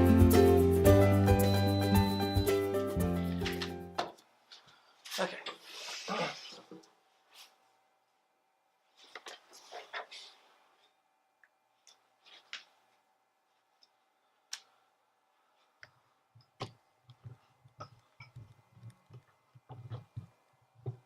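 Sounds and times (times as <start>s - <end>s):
soft handling knocks and taps: 15.8s - 21.0s.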